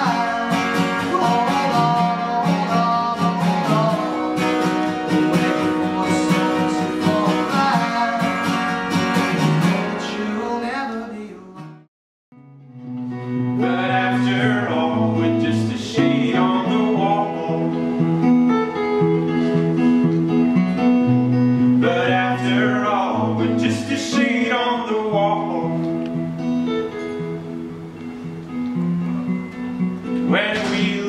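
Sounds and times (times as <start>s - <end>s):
person singing: 0.0s - 8.9s, 13.4s - 18.1s, 30.2s - 31.0s
acoustic guitar strumming: 0.0s - 31.0s.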